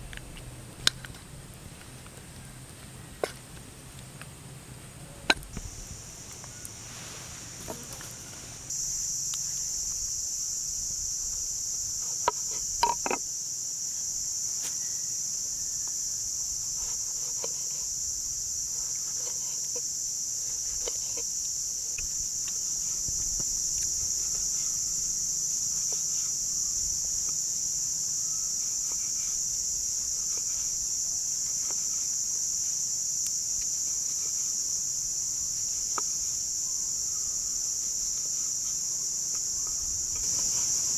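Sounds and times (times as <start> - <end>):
insects chirping chorus: 0.0 - 40.9.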